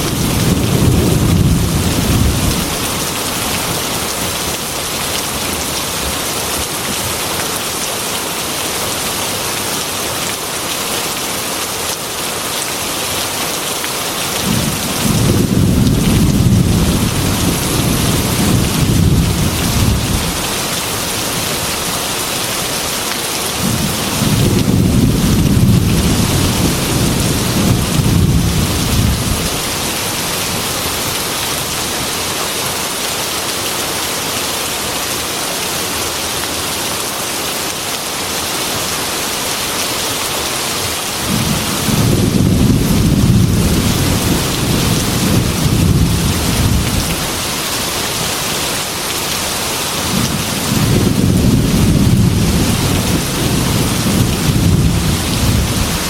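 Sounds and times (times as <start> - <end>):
thunder rumbling: 0.0 - 3.3, 14.4 - 20.7, 23.6 - 30.9, 41.3 - 47.4, 50.0 - 56.0
heavy rain on a glass window: 0.0 - 56.0.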